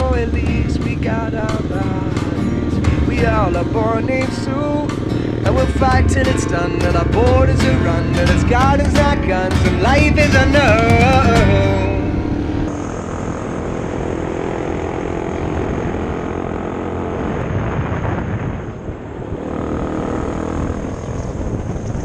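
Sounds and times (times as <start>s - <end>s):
motorcycle engine droning: 0.0s - 22.0s
wind noise: 0.0s - 22.0s.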